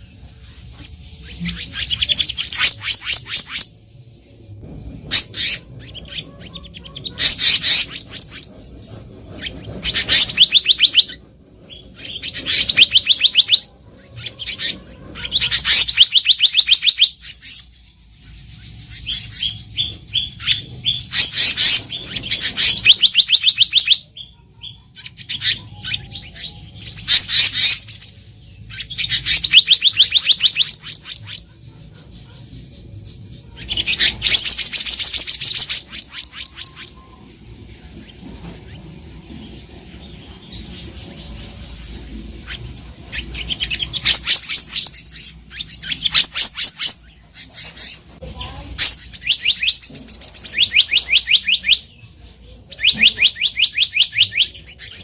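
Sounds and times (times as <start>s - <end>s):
bird singing high trills: 9.4s - 31.5s, 40.2s - 52.1s.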